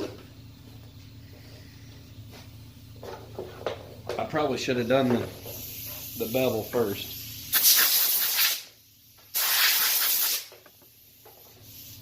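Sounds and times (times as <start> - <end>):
hissing bursts: 5.4 - 12.0.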